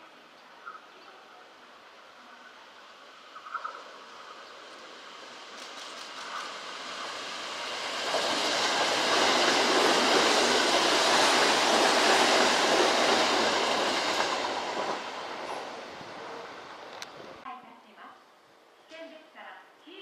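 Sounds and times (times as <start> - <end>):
electric train passing on tracks: 0.0 - 17.4.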